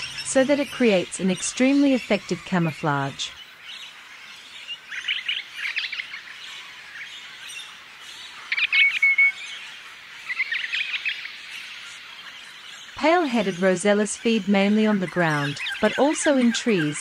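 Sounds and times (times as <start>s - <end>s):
birds chirping rapidly: 0.0s - 17.0s
bird whistle: 8.5s - 9.4s.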